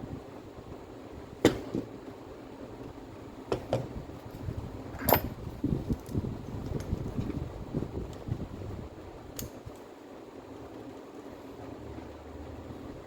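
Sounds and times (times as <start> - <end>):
low rumble of handling noise: 0.0 - 13.0.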